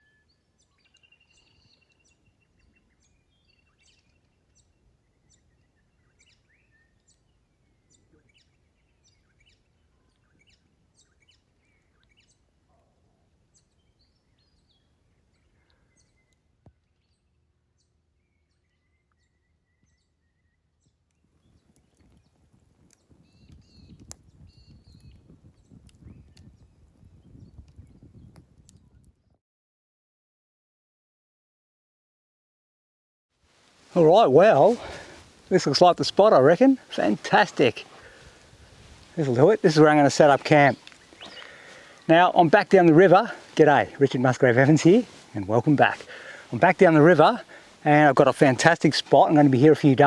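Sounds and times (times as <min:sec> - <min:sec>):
low rustling: 0:33.6 - 0:50.0
birds chirping and trilling: 0:34.0 - 0:50.0.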